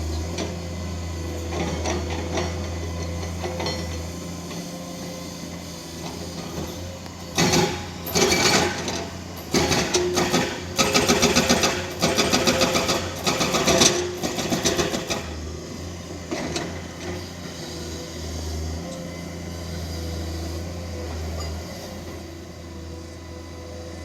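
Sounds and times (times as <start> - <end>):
hydraulic rock breaker hammering: 7.3 - 15.5.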